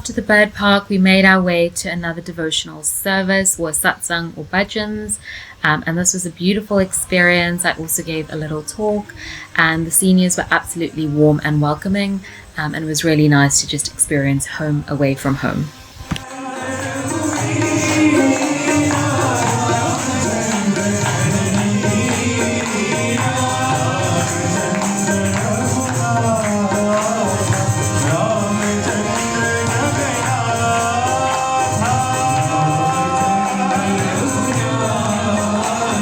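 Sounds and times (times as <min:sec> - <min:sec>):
devotional singing: 0:00.0 - 0:36.0
tambourine: 0:16.2 - 0:36.0.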